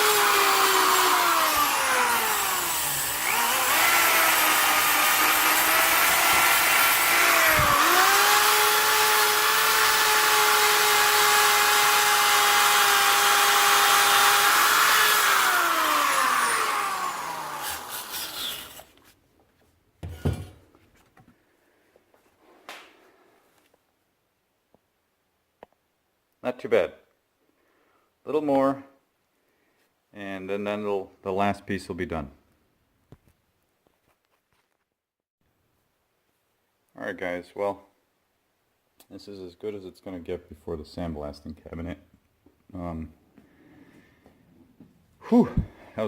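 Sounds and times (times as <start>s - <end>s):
abrasive wheel grinding metal: 0.0s - 18.9s.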